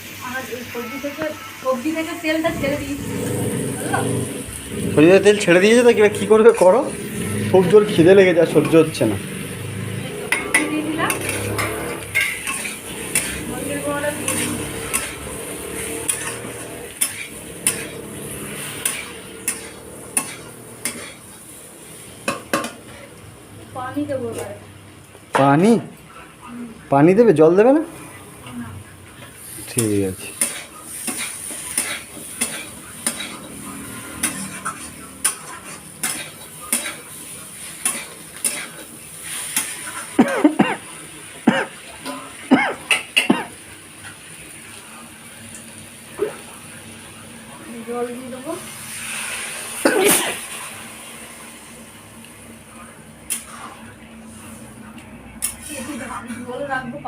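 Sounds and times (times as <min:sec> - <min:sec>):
oil sizzling: 0:00.0 - 0:26.2, 0:27.2 - 0:56.8
utensil scraping a pan: 0:10.2 - 0:21.4, 0:29.8 - 0:40.1.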